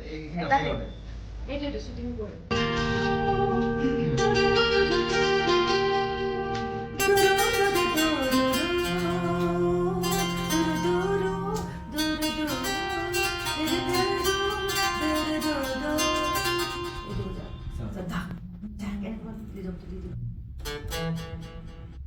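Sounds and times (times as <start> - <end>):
gliding melody line: 2.5 - 18.3
plucked acoustic guitar: 2.5 - 19.0, 20.6 - 22.0.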